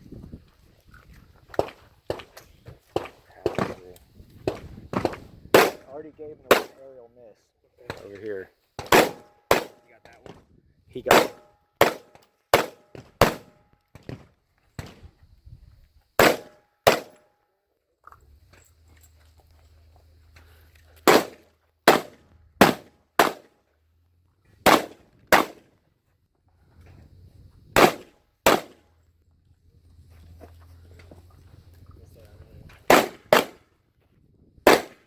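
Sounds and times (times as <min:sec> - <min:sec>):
shotgun shots: 0:02.9 - 0:06.8, 0:08.8 - 0:09.9, 0:11.0 - 0:14.2, 0:16.2 - 0:17.2, 0:21.0 - 0:23.6, 0:24.6 - 0:25.7, 0:27.8 - 0:28.8, 0:32.9 - 0:33.6, 0:34.6 - 0:35.0
faint low rumble: 0:28.9 - 0:32.9.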